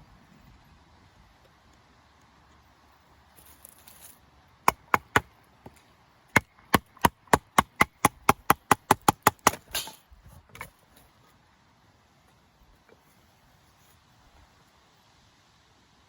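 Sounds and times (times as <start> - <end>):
knife chopping wood: 4.7 - 10.0.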